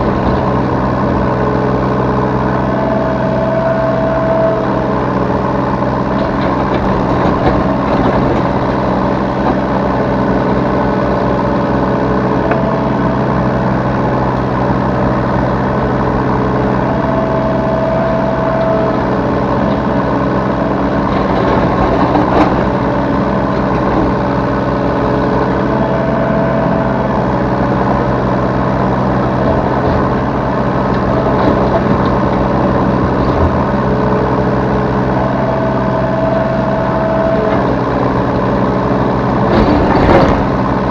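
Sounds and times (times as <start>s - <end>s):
excavator diesel engine running: 0.0s - 40.9s
higher machine tone: 2.4s - 5.6s, 16.6s - 20.8s, 24.9s - 28.4s, 35.1s - 38.3s.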